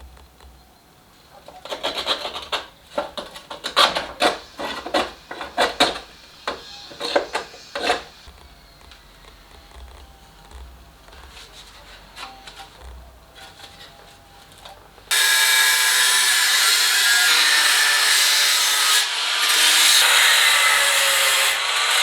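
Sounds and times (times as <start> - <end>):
file scraping a workpiece: 1.3 - 8.8.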